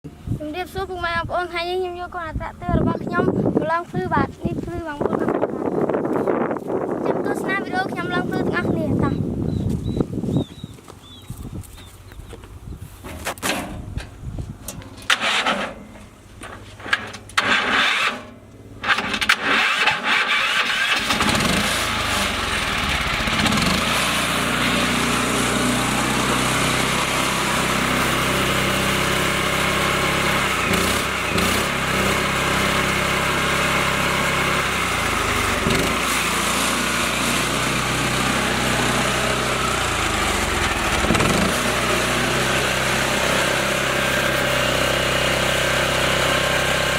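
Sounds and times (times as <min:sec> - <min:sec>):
tractor engine starting and running: 0:13.0 - 0:46.9.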